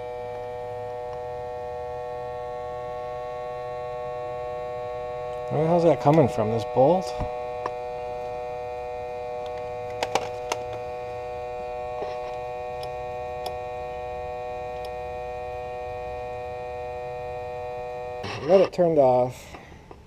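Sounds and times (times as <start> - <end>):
air pump electric hum: 0.0 - 20.0.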